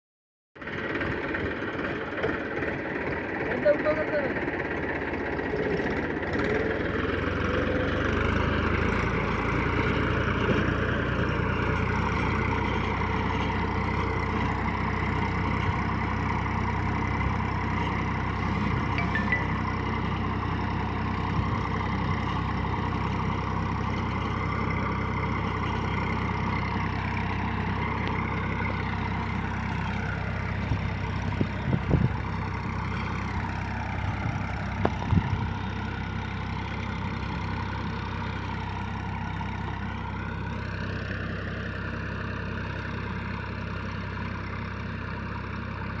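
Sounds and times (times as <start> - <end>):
tractor diesel engine running: 0.6 - 46.0.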